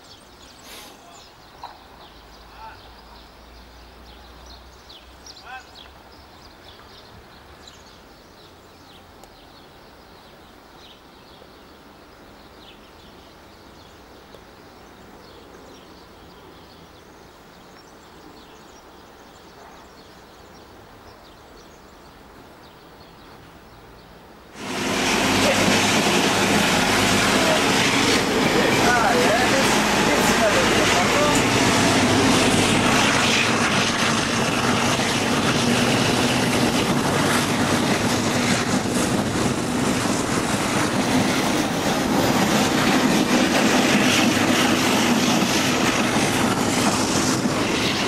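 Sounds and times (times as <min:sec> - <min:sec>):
small birds chirping: 0:00.0 - 0:24.2
train running noise: 0:24.5 - 0:48.0.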